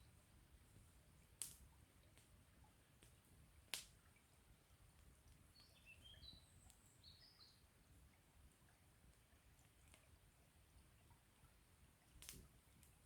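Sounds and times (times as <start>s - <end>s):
campfire wood crackling: 0.8s - 2.4s, 3.0s - 4.2s, 12.0s - 13.0s.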